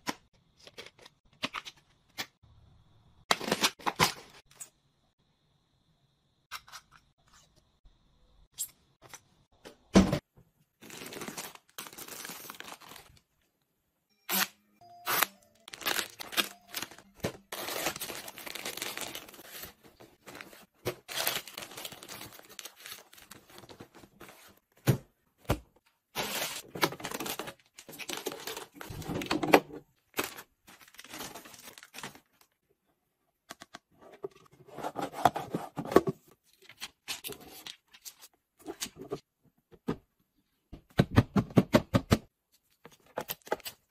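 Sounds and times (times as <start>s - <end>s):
packaging torn and crinkled: 15.1s - 19.6s.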